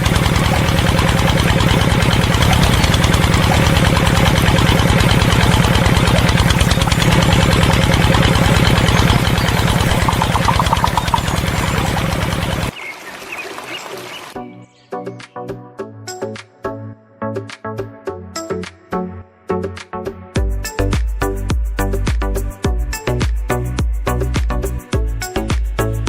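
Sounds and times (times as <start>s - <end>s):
small engine knocking: 0.0s - 14.3s.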